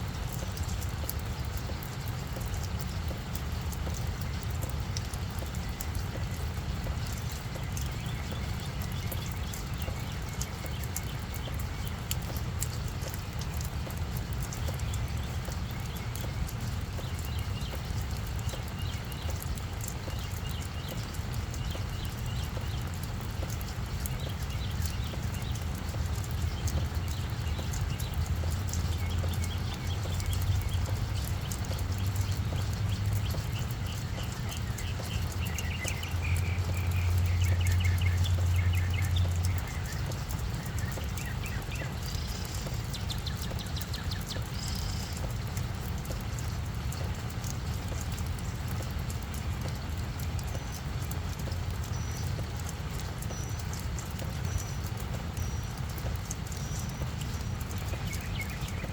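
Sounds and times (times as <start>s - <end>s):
raindrops tapping: 0.0s - 58.9s.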